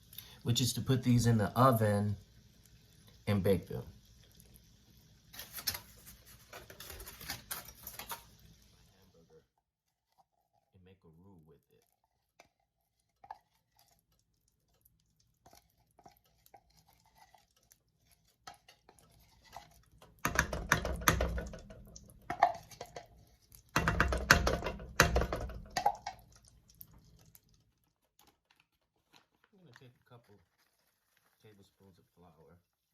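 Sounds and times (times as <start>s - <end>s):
cookware clattering and scraping: 5.4s - 8.4s, 18.5s - 23.2s.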